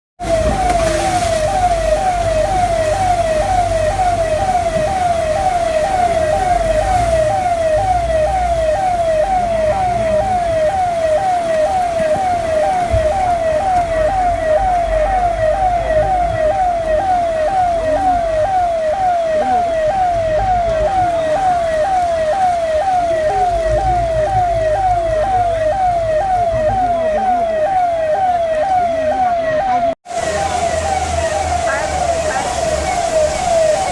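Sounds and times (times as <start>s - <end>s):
police siren yelping: 0.2s - 33.9s
vehicle rumble: 0.2s - 33.9s.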